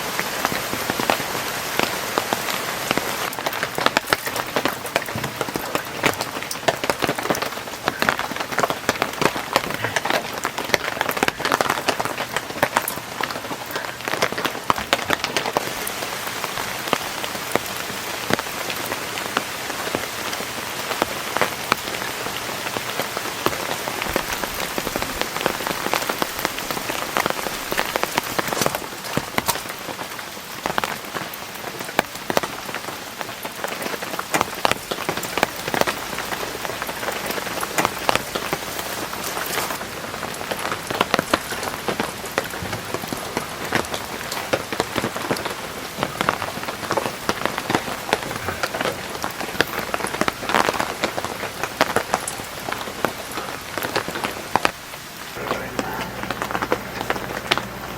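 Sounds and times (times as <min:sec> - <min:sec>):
heavy rain falling: 0:00.0 - 0:57.9
raindrops striking close by: 0:00.0 - 0:57.9.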